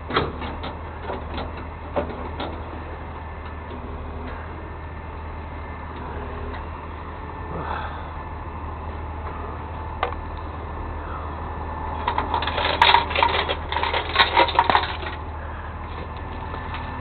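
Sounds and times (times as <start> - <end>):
steady low hum: 0.0 - 17.0
rapid metallic clicking and rattling: 12.0 - 15.3.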